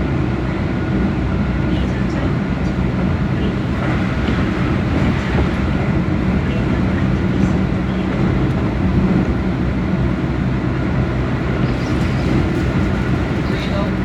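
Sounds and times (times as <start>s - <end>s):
electric train rumbling with low hum: 0.0s - 14.0s.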